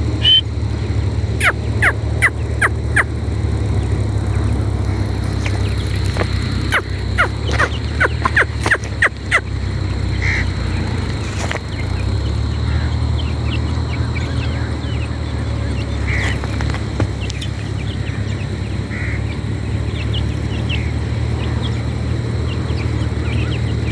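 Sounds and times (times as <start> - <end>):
francolin calling: 0.0 - 23.9
steady low hum: 0.0 - 23.9.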